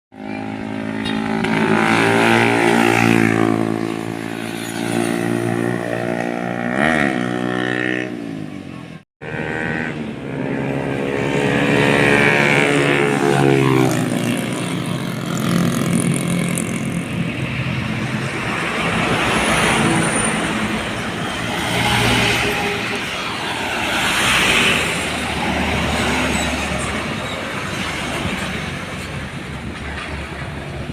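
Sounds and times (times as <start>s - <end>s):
diesel trucks driving past: 9.2s - 30.9s.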